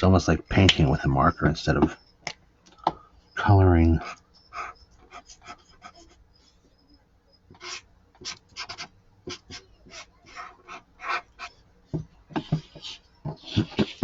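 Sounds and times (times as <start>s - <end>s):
marker scratching on paper: 4.0s - 6.6s, 7.5s - 14.0s
dull knocks: 11.9s - 13.5s.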